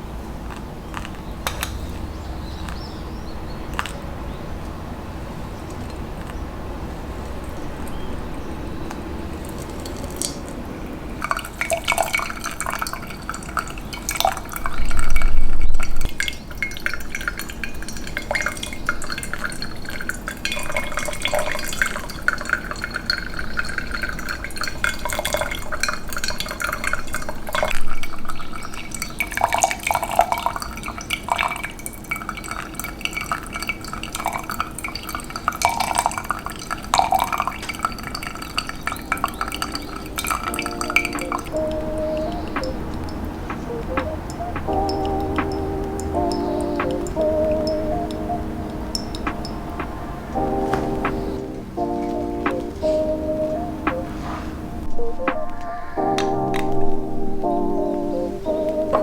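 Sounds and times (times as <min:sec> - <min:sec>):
liquid dripping and splashing: 0:07.1 - 0:53.0.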